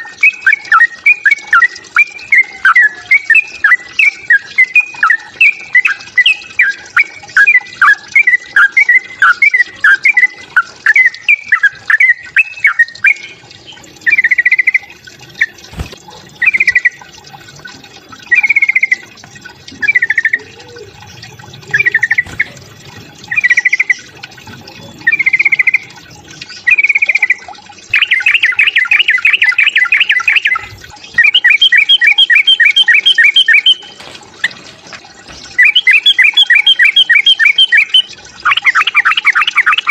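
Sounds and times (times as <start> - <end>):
bird fighting calls and trills: 14.1 - 17.0, 19.8 - 25.8, 26.7 - 39.9.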